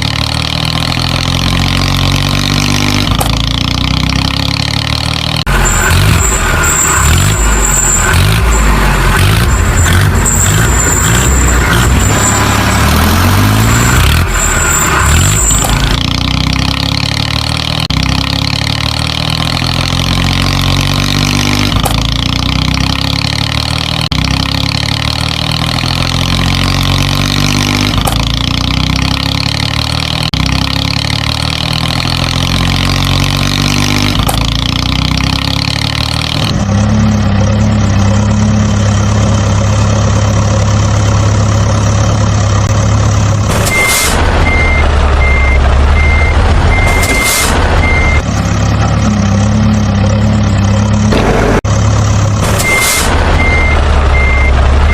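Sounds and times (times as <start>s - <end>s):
truck engine: 0.0s - 54.9s
reversing beeper: 5.5s - 16.0s, 43.6s - 48.3s, 52.5s - 54.9s.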